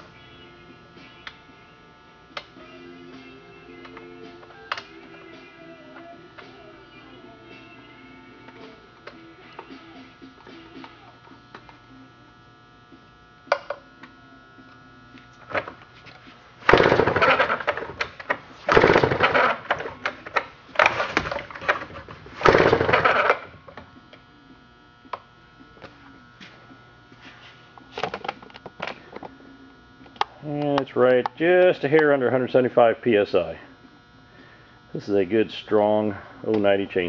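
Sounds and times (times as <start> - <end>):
chainsaw starter rope pulls: 16.7 - 18.1, 18.7 - 23.5.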